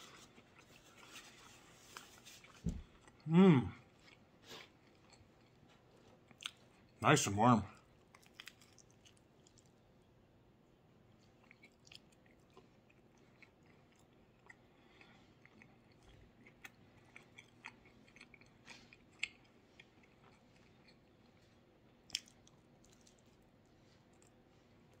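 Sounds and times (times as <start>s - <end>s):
chewing mouth clicks: 8.0s - 9.8s, 11.2s - 23.4s.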